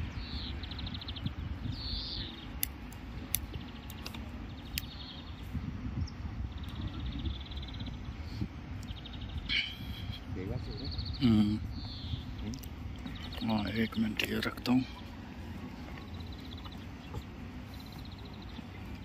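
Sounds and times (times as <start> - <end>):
low outdoor rumble: 0.0 - 19.0
small birds chirping: 0.0 - 19.0
sharp clicks: 2.6 - 5.0.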